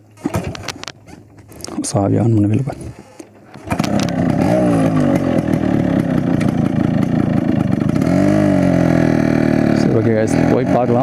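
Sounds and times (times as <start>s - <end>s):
motorcycle engine revving: 3.5s - 11.0s.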